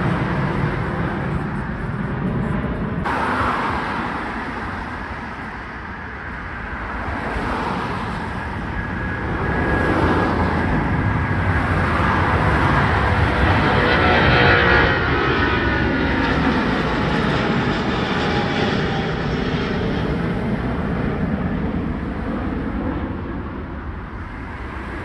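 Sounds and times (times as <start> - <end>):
jet airliner engine noise: 0.0 - 25.0
road traffic rumble: 0.0 - 25.0.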